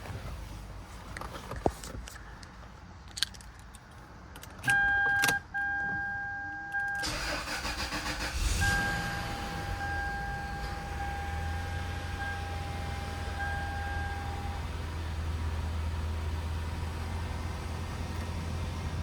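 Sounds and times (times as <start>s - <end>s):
car engine starting and idling: 6.7s - 19.0s.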